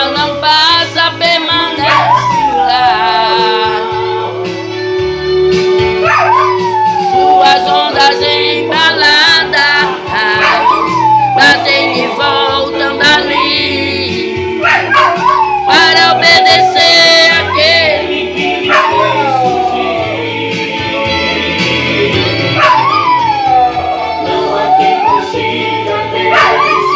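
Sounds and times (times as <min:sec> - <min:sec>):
recorded hymn music: 0:00.0 - 0:26.9
dog howling: 0:01.7 - 0:04.4, 0:06.0 - 0:13.9, 0:14.6 - 0:20.4, 0:22.5 - 0:25.5, 0:26.2 - 0:26.9.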